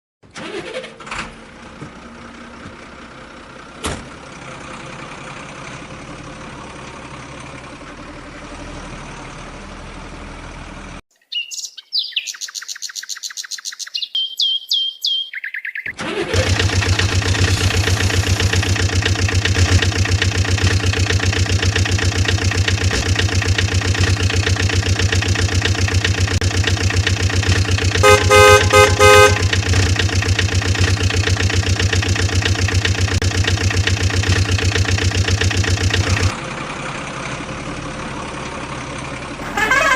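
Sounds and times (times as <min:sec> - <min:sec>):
electronic bird-like chirps: 0:11.2 - 0:16.0
electronic engine buzz: 0:16.2 - 0:36.3, 0:39.4 - 0:39.9
toy horn beeps: 0:28.0 - 0:29.6, 0:39.4 - 0:39.9.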